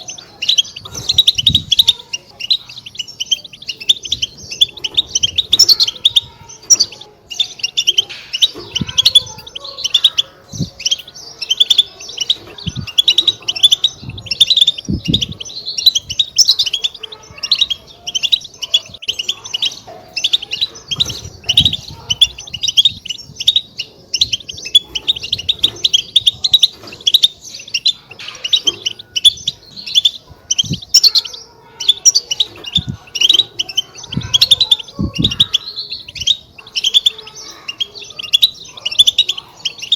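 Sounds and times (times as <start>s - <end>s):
finches twittering: 0.0s - 39.9s.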